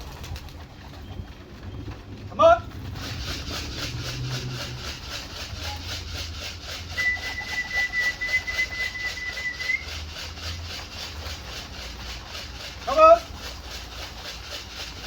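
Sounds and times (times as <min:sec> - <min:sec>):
fast even pulsing: 0:00.0 - 0:15.0
long steady whistle: 0:06.8 - 0:10.1.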